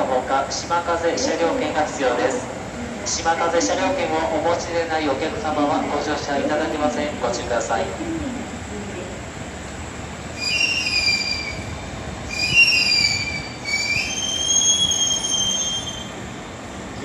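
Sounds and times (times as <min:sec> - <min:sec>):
train rumbling: 0:00.0 - 0:17.0
high-pitched train squeals: 0:10.4 - 0:16.3.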